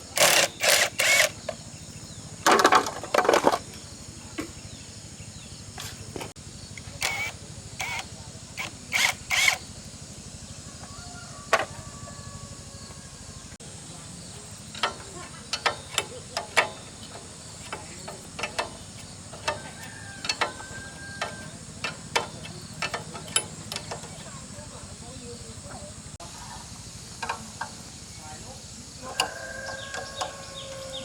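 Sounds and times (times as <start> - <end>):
tools clicking and knocking on metal: 14.5 - 24.5, 27.2 - 27.8, 29.1 - 31.0.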